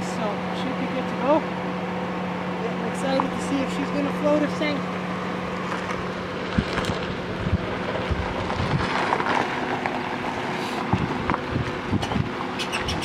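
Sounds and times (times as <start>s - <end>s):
vehicle engine running: 0.0s - 13.0s
wind noise on microphone: 6.4s - 9.0s, 10.8s - 13.0s.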